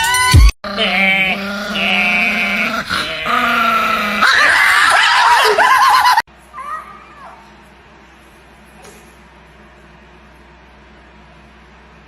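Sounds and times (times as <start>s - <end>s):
dog whining: 0.3s - 6.1s.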